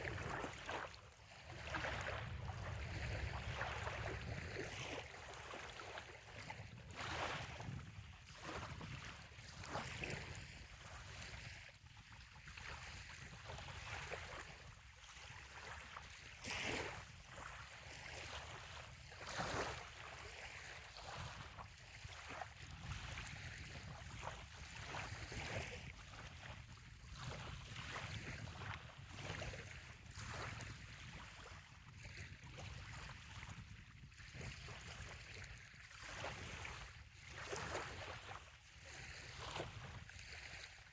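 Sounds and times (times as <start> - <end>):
small waves splashing on shore: 0.0 - 40.9.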